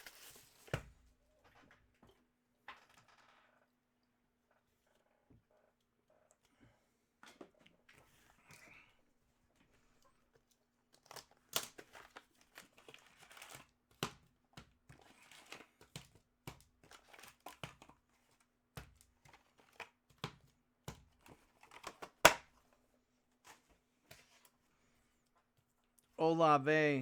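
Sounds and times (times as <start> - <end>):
card wrappers crinkling: 0.0 - 0.7.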